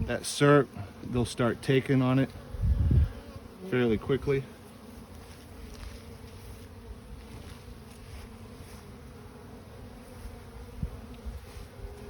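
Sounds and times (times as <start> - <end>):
bee swarm buzzing: 0.0 - 12.0.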